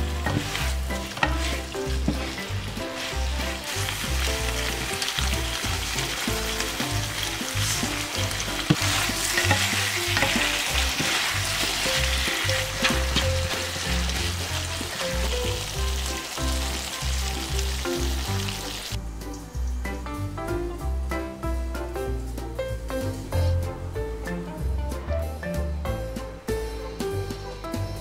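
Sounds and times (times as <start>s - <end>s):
wooden spatula stirring: 0.0s - 16.0s
food sizzling in a frying pan: 0.0s - 19.0s.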